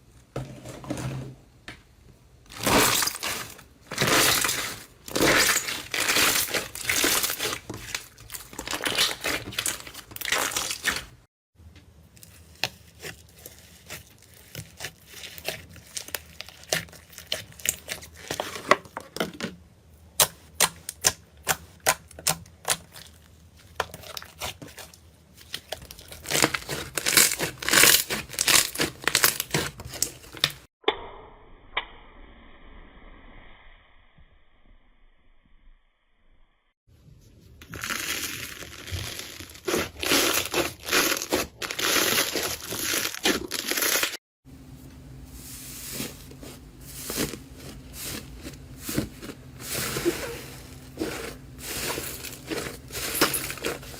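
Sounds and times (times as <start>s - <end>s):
slime crackling: 25.5s - 30.6s.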